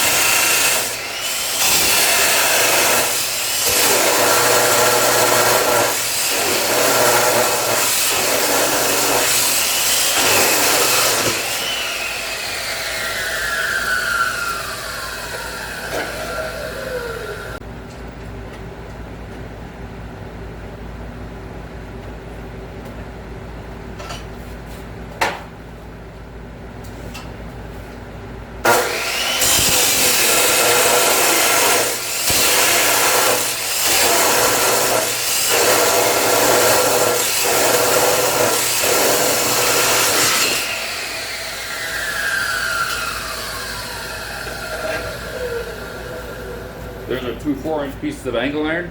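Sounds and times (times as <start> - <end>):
chop saw cutting steel: 0.0 - 17.6, 28.6 - 47.8
saw blade spinning down: 0.0 - 17.6, 28.7 - 47.4.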